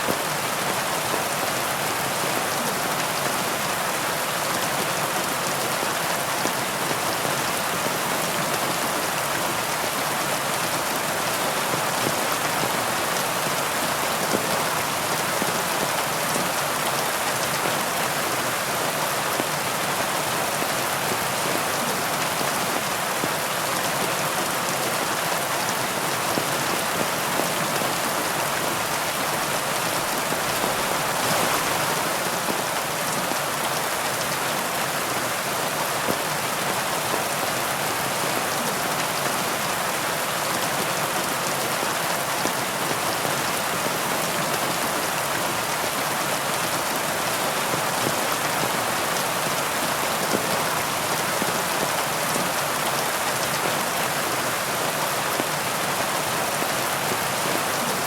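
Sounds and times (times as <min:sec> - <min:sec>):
heavy rainfall: 0:00.0 - 0:58.0.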